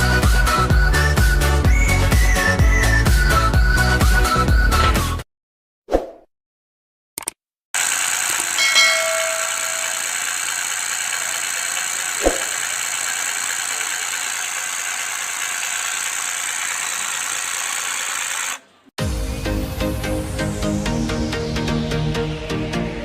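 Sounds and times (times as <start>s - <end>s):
small motor whirring: 7.8s - 18.7s.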